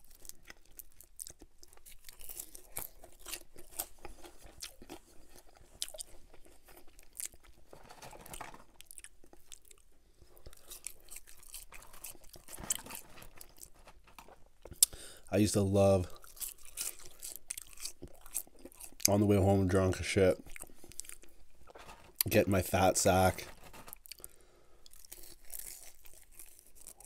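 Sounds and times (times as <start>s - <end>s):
crunchy chewing with wet mouth clicks: 0.0s - 7.7s, 8.8s - 15.0s, 16.1s - 19.2s, 20.4s - 21.4s, 24.0s - 27.0s.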